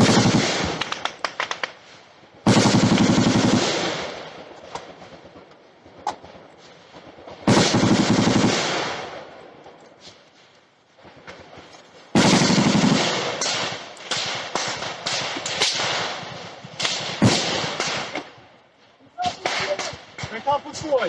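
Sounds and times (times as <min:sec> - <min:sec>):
automatic gunfire bursts: 0:00.0 - 0:01.6, 0:02.4 - 0:04.2, 0:07.4 - 0:09.1, 0:12.1 - 0:16.2
single gunshots: 0:00.0 - 0:01.7, 0:02.4 - 0:04.4, 0:07.4 - 0:09.3, 0:12.1 - 0:18.3, 0:19.2 - 0:20.4.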